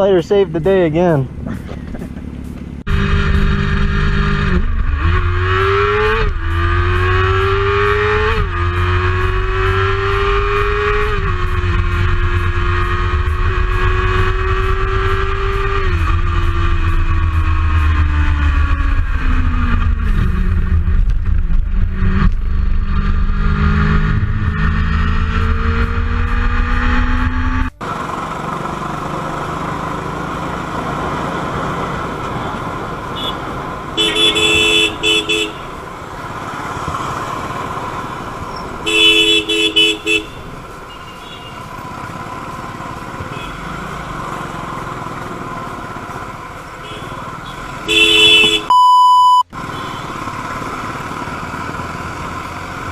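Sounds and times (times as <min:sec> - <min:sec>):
motorcycle engine running: 0:00.0 - 0:48.7, 0:49.6 - 0:52.9
road traffic noise: 0:00.0 - 0:52.9
two-tone car horn honking: 0:33.1 - 0:35.8, 0:38.8 - 0:41.7, 0:43.2 - 0:44.0, 0:46.8 - 0:50.2.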